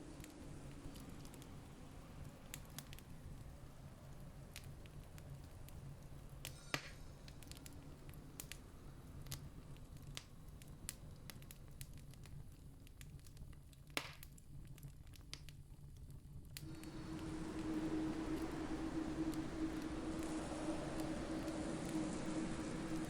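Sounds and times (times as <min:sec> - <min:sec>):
campfire crackling: 0:00.0 - 0:23.0
burning wood popping: 0:04.1 - 0:23.0
low rumble: 0:16.6 - 0:23.0.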